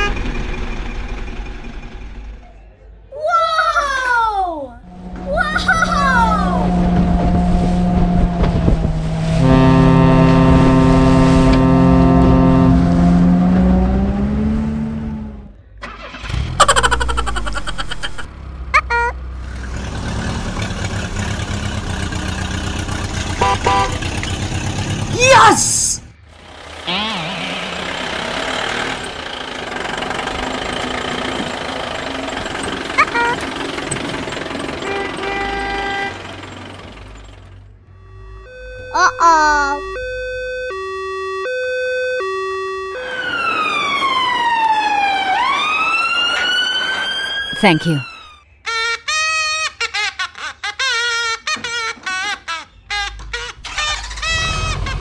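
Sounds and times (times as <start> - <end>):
engine pulsing rumble: 4.8 - 25.2, 26.0 - 39.0
ship's horn blast: 4.9 - 14.6, 23.4 - 24.0, 34.8 - 36.2.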